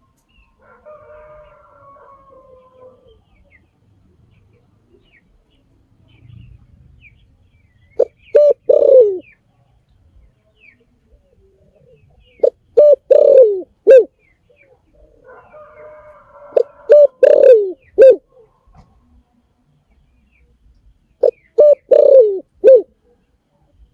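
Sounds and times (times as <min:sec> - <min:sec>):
dove cooing: 0:00.6 - 0:03.4, 0:08.0 - 0:09.3, 0:11.2 - 0:19.0, 0:21.2 - 0:23.2.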